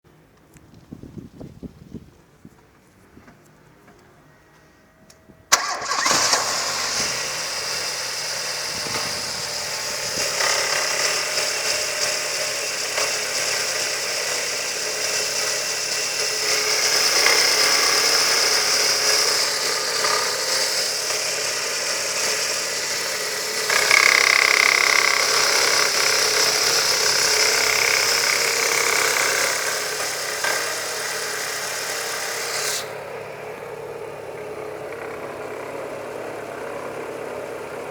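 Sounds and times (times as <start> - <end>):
petrol engine starting: 3.7 - 37.9
engine knocking: 5.6 - 32.2, 34.3 - 37.9.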